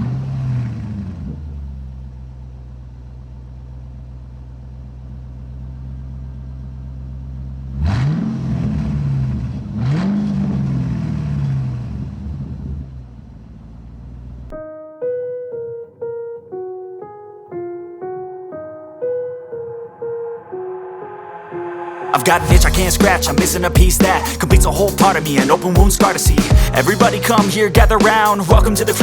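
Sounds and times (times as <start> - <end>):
car engine idling and revving: 0.0 - 14.5.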